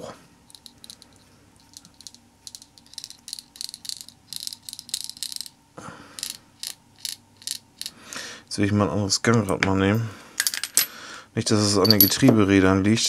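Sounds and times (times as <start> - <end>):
steel balls clicking and rattling: 0.5 - 5.6, 6.2 - 8.0, 11.8 - 12.3.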